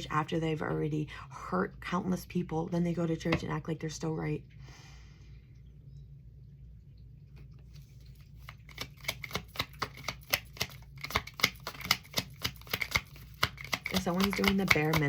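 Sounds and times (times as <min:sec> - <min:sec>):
cards being shuffled: 0:07.7 - 0:15.0.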